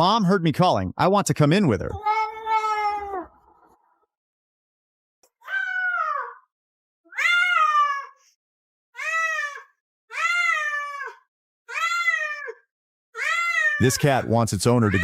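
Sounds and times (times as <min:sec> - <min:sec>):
cat meowing: 0:02.0 - 0:03.4, 0:05.4 - 0:06.4, 0:07.1 - 0:08.2, 0:09.0 - 0:12.6, 0:13.2 - 0:15.0.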